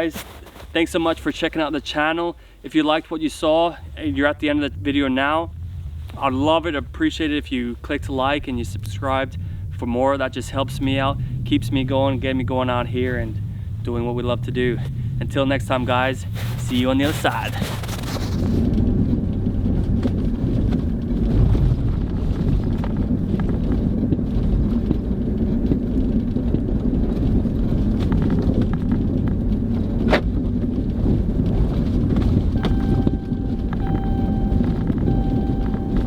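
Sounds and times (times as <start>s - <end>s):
low rumble: 3.2s - 36.0s
short steady tones: 32.6s - 36.0s.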